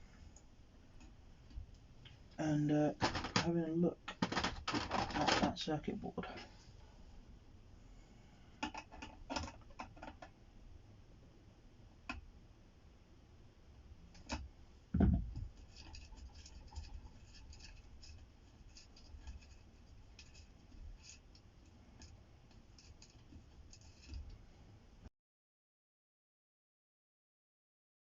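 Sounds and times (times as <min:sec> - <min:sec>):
hands and tools clicking and tapping: 0:04.1 - 0:05.5, 0:08.6 - 0:10.3.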